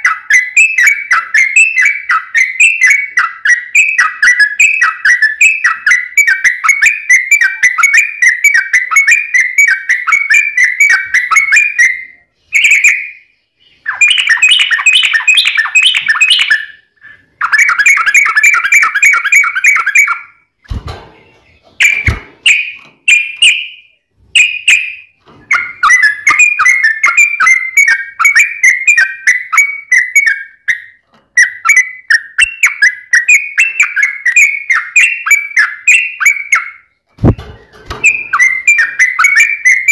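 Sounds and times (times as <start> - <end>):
bird singing chattering phrases: 0.0 - 20.4.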